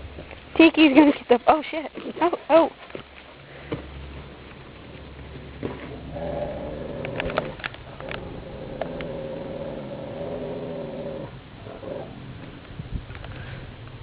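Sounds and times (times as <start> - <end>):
dog drawn-out vocal sound: 5.6 - 12.3.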